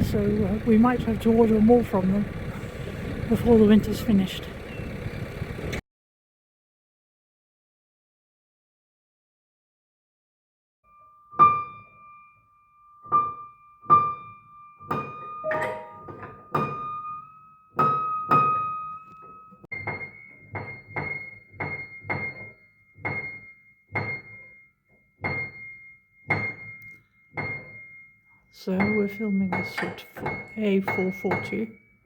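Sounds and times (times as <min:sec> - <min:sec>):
piano notes struck: 0:10.9 - 0:24.6, 0:25.2 - 0:28.0
piano key and hammer thump: 0:13.1 - 0:24.5, 0:25.2 - 0:25.7, 0:26.3 - 0:26.8, 0:27.4 - 0:27.9, 0:28.8 - 0:31.6.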